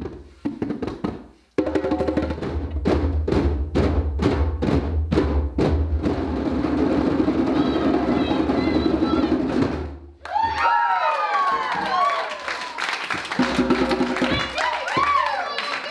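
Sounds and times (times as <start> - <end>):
hand drums playing: 0.0 - 9.9, 13.3 - 15.3.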